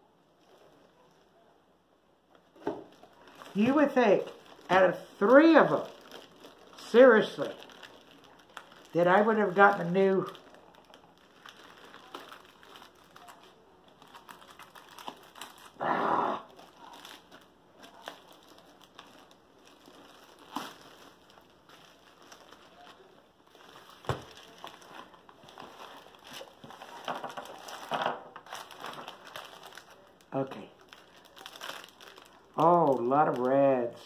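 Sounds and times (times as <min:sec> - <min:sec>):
plastic packaging crinkling: 0:02.3 - 0:15.8, 0:16.4 - 0:34.0.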